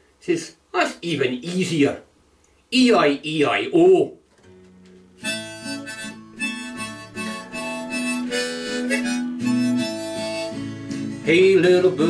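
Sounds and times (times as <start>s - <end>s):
acoustic guitar: 4.3s - 12.0s
harmonica melody: 5.2s - 12.0s.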